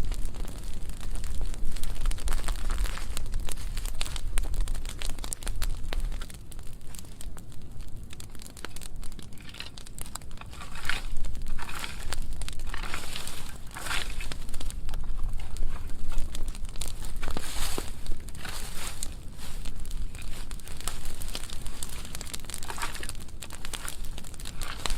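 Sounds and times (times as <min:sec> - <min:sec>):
brushwood fire crackling: 0:00.0 - 0:24.9
fire low rumble: 0:00.0 - 0:24.9
hissing flare-ups: 0:00.0 - 0:24.9.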